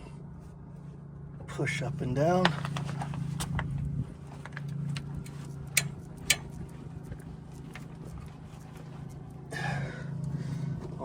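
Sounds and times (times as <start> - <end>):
steady low hum: 0.0 - 11.0
suspension creaking and clicking: 2.3 - 9.5.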